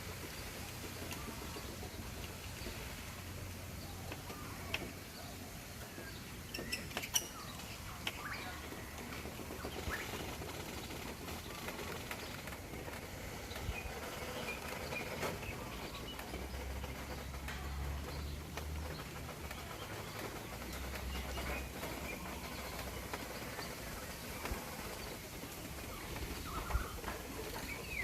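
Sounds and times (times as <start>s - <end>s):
small birds chirping: 0.0s - 28.0s
steady outdoor hiss: 0.0s - 28.0s.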